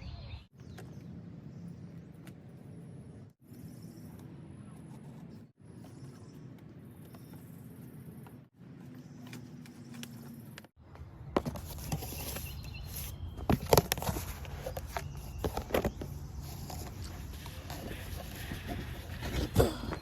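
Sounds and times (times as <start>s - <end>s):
cardboard box being opened: 11.4s - 20.0s.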